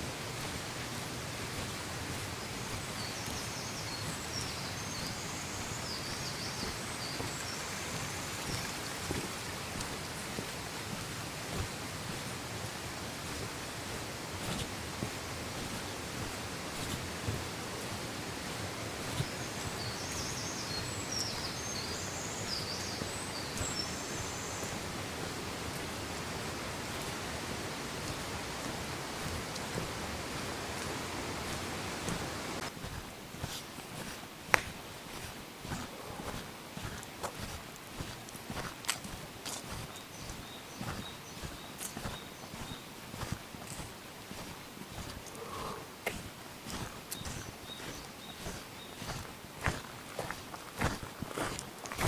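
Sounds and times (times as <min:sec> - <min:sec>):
flowing water rushing: 0:00.0 - 0:52.0
small bird chirping: 0:02.3 - 0:10.4, 0:19.0 - 0:24.9, 0:39.6 - 0:45.9, 0:46.7 - 0:49.8
songbird warbling: 0:45.2 - 0:46.0.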